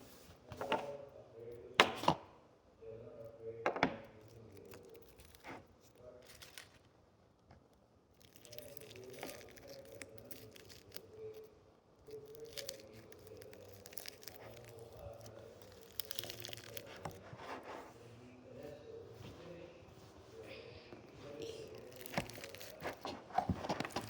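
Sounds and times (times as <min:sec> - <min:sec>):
dry crinkling and crunching: 0:04.2 - 0:07.0, 0:07.7 - 0:17.9, 0:21.0 - 0:24.0.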